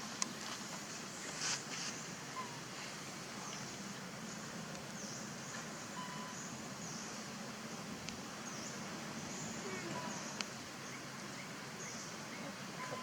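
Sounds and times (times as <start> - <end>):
outdoor background noise: 0.0 - 13.0
faint high-pitched chirps: 5.9 - 7.1.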